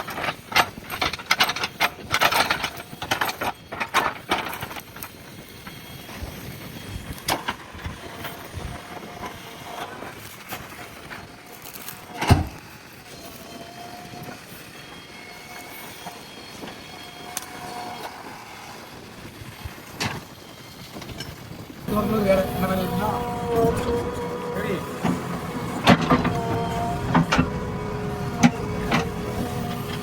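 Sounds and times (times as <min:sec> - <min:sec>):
backhoe engine running: 0:21.8 - 0:30.0
faint whine: 0:21.9 - 0:30.0.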